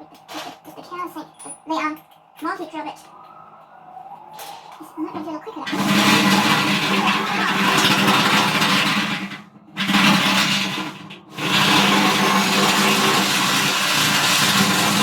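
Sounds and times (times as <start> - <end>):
power drill cutting: 5.6 - 15.0.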